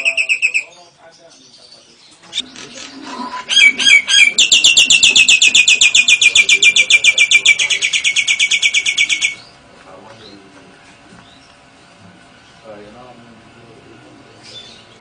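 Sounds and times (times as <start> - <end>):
songbird trilling: 0.0 - 9.6.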